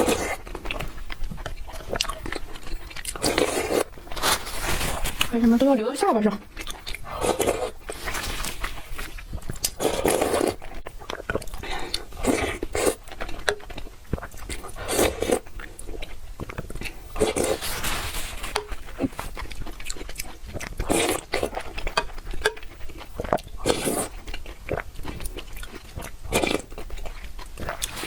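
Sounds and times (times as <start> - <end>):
chewing noodles with mouth clicks: 0.0 - 4.3, 6.4 - 28.0.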